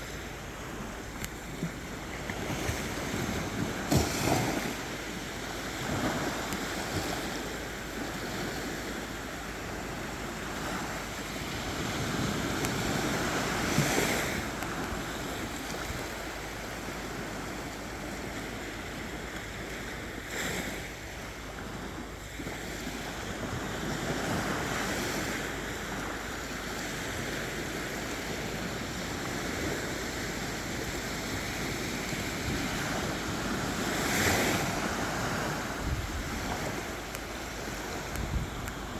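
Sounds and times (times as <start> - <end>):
sea waves breaking on beach: 0.0 - 38.9
wind on microphone: 26.8 - 38.9.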